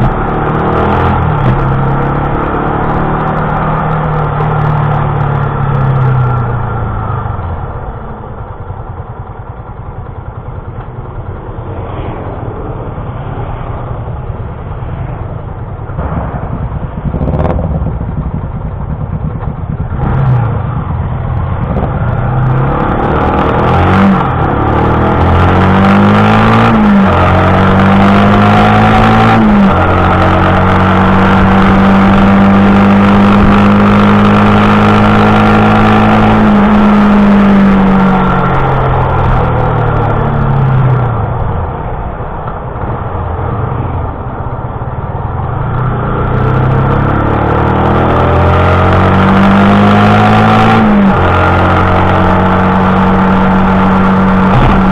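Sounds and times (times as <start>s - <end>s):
motorcycle engine revving: 0.0s - 54.9s
wind and road hiss: 10.4s - 18.8s.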